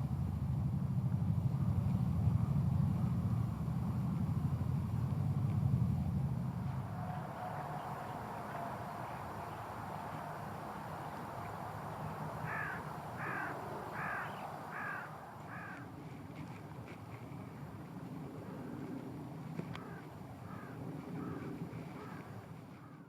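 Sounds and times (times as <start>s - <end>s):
crow cawing: 12.1s - 15.8s, 19.8s - 21.4s, 22.0s - 22.2s.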